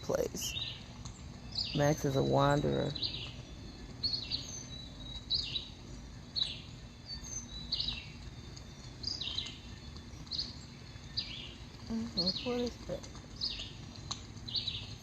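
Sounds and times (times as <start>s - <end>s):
low background rumble: 0.0s - 15.0s
songbird whistling: 0.4s - 12.8s.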